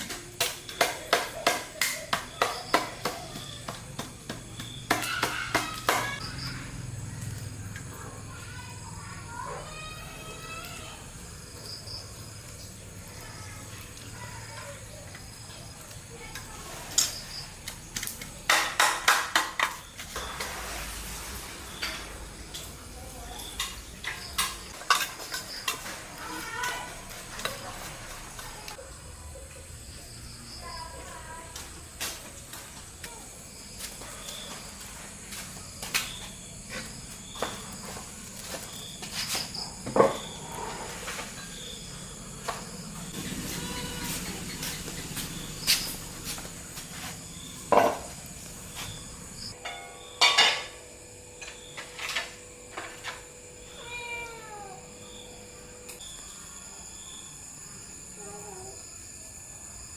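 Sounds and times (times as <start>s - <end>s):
kitchen utensils knocking: 0.0s - 6.2s, 18.4s - 20.4s, 23.4s - 28.8s, 47.7s - 48.2s, 49.5s - 53.2s
insects chirping: 0.0s - 59.9s.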